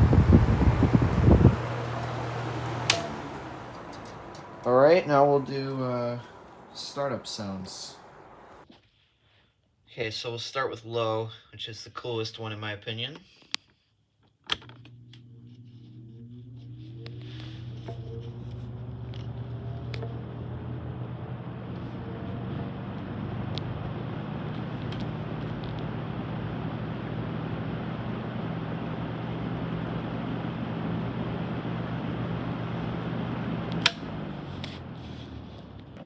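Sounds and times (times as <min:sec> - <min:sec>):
box fan motor hum: 0:00.0 - 0:08.6, 0:14.8 - 0:36.0
fan air rushing: 0:00.0 - 0:08.6, 0:15.2 - 0:36.0
sharp click: 0:01.6 - 0:04.8, 0:33.8 - 0:34.7.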